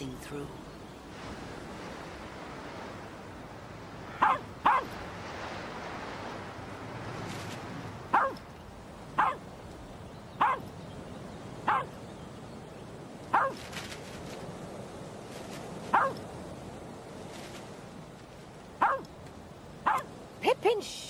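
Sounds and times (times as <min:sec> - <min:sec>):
dog barking: 0:04.2 - 0:05.0, 0:08.1 - 0:08.4, 0:09.2 - 0:09.4, 0:10.4 - 0:10.7, 0:11.6 - 0:12.0, 0:13.3 - 0:13.6, 0:15.9 - 0:16.2, 0:18.8 - 0:19.1, 0:19.8 - 0:20.1.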